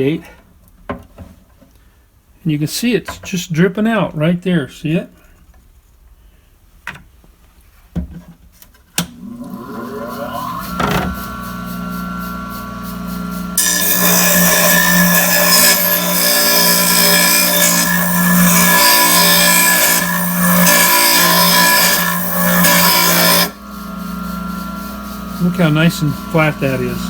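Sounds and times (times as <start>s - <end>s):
glass grinder motor humming: 9.6s - 27.0s
glass grinding gritty hiss: 20.0s - 27.0s.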